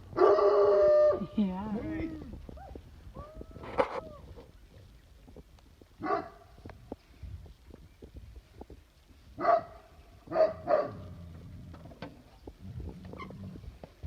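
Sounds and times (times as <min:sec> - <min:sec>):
dog barking: 0:06.0 - 0:06.4, 0:09.4 - 0:11.0.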